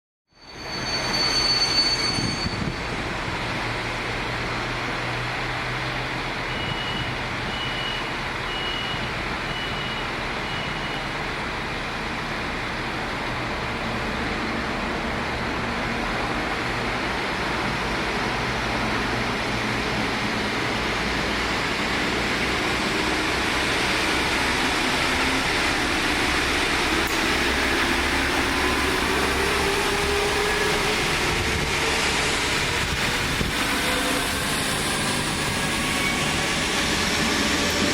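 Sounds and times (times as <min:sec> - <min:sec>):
diesel railcar engine drone: 0:00.4 - 0:37.9
short high beeps: 0:06.5 - 0:11.1.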